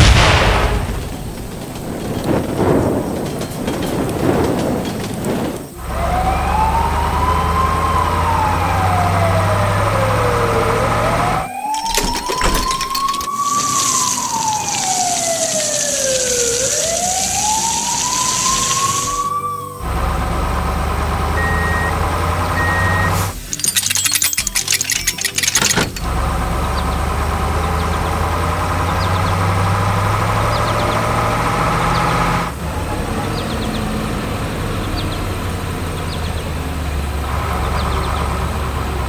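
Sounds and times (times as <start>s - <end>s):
low vehicle engine hum: 5.2s - 11.4s, 19.8s - 23.3s, 26.0s - 39.0s
siren wailing: 5.8s - 25.7s
high hiss: 13.2s - 19.6s.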